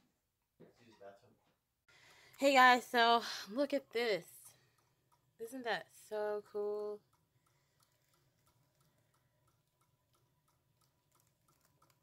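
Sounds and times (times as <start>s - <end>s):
faint regular ticking: 2.1s - 12.0s.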